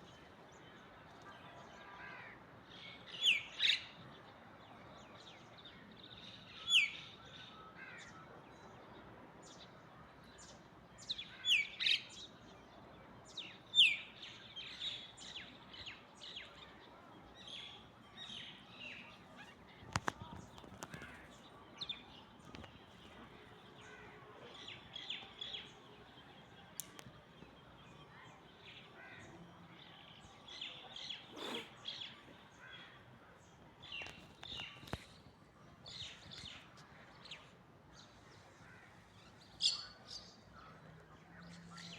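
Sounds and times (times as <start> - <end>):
birds chirping: 18.1 - 41.9.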